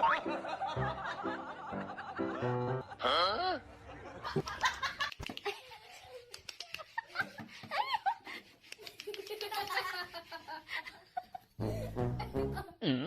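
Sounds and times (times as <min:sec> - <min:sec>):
people laughing and giggling: 0:00.0 - 0:12.9.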